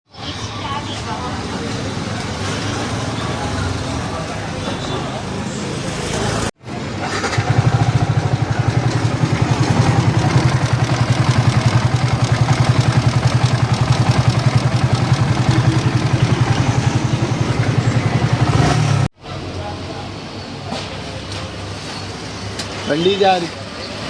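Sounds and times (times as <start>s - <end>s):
motorcycle engine idling: 7.0s - 19.1s.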